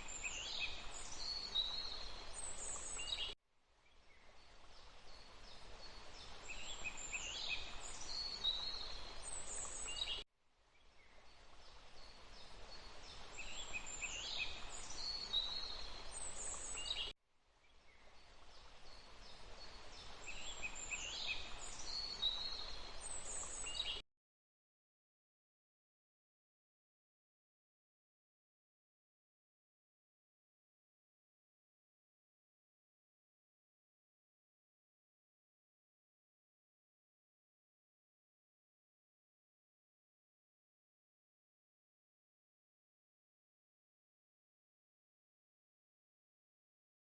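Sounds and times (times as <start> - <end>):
steady hiss: 0.0 - 3.3, 4.4 - 10.2, 11.2 - 17.1, 17.9 - 24.0
birds singing: 0.0 - 10.2, 10.8 - 24.0.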